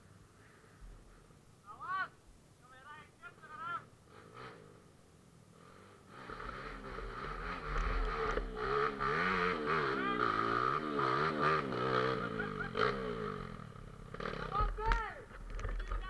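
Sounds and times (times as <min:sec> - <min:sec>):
motorcycle engine revving: 0:04.0 - 0:04.9, 0:05.5 - 0:16.0.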